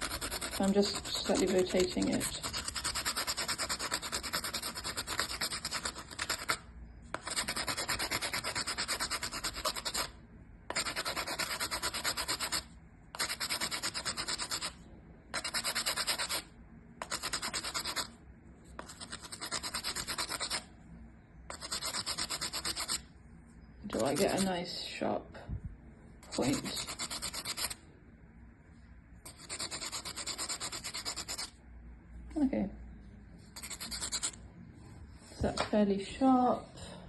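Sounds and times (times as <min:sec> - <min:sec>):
charcoal stick scraping: 0:23.9 - 0:24.5.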